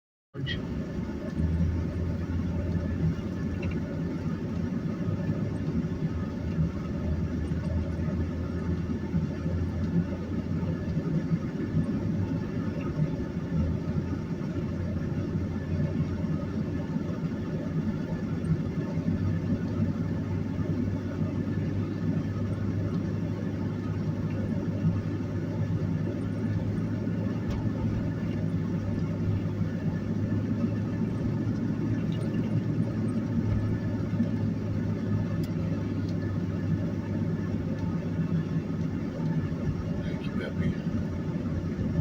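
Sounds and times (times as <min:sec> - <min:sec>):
engine and road rumble: 0:00.3 - 0:42.0
low hum: 0:00.4 - 0:42.0.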